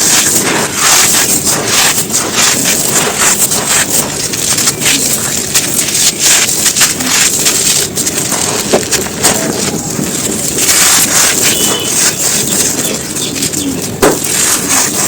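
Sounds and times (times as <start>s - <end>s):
dry clumps crushed by hand: 0.0s - 15.0s.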